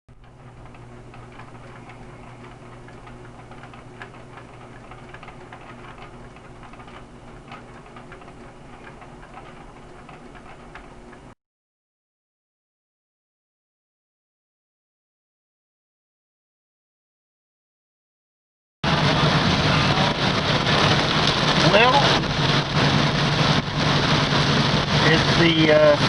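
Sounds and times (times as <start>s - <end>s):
steady low hum: 0.1s - 11.4s, 18.8s - 26.0s
raindrops ticking on hard surface: 0.2s - 10.9s, 18.9s - 26.0s.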